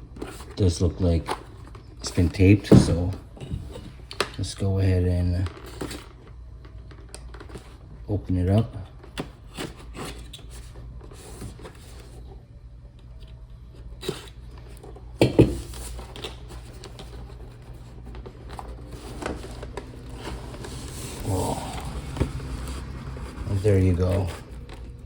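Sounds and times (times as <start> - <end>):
cardboard packaging rustling: 14.0 - 25.0.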